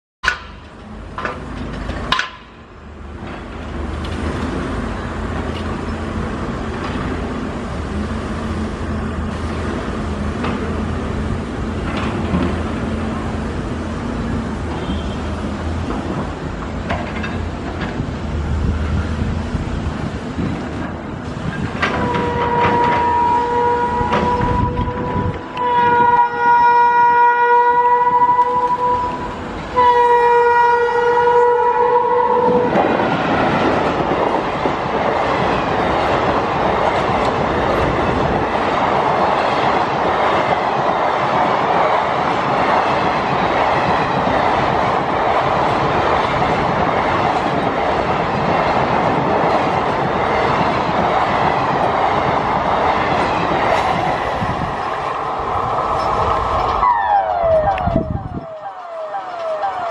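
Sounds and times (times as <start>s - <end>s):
train wheels on rails: 0.2s - 59.9s
train horn blasts: 14.7s - 15.4s, 21.9s - 32.8s.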